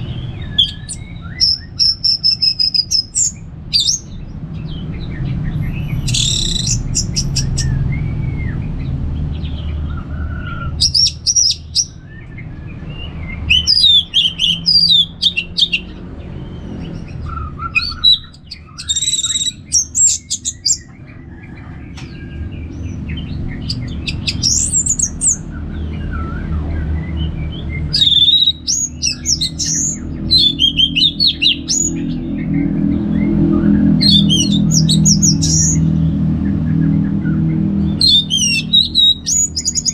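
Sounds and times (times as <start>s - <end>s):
thrush singing whistled phrases: 0.0s - 4.2s, 6.0s - 8.4s, 13.0s - 16.0s, 17.0s - 20.8s, 26.0s - 32.2s, 33.2s - 35.8s, 37.9s - 39.9s
steady low rumble: 0.0s - 39.9s.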